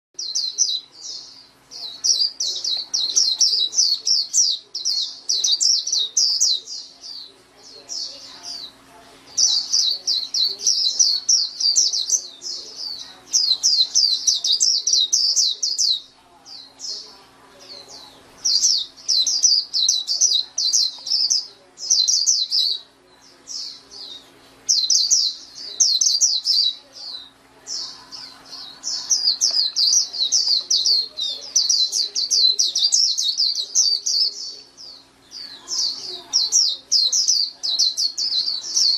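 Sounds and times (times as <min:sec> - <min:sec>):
bird twittering: 0:07.9 - 0:38.9.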